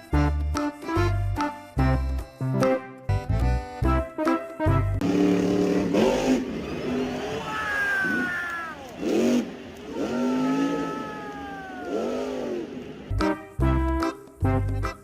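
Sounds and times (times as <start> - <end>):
cartoon engine revving: 5.0 - 13.2.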